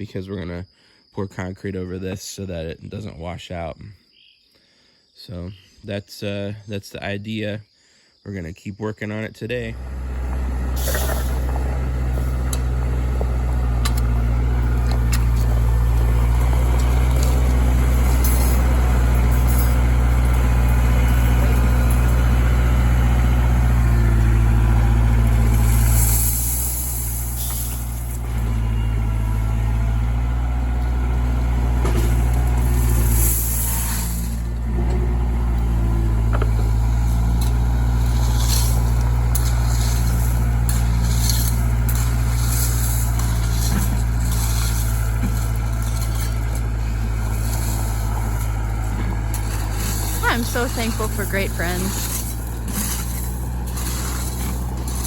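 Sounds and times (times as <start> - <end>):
truck diesel engine running: 9.6 - 55.0
short air hisses: 25.6 - 28.2, 32.8 - 34.4.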